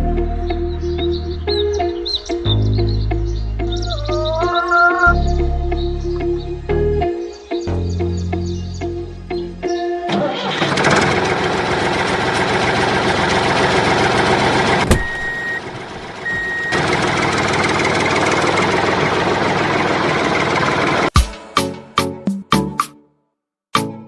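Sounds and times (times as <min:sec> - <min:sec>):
engine running: 0:10.1 - 0:21.2.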